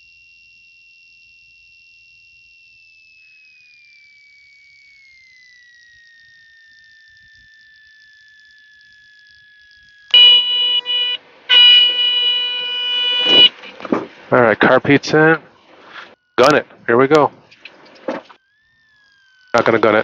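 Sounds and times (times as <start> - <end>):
thin high whine: 0.0 - 20.0
stall warning horn buzzing: 10.1 - 17.2.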